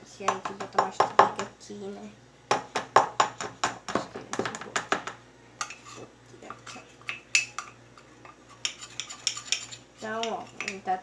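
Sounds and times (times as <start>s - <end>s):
spoon knocking on mixing bowl: 0.2s - 1.5s, 2.5s - 5.8s.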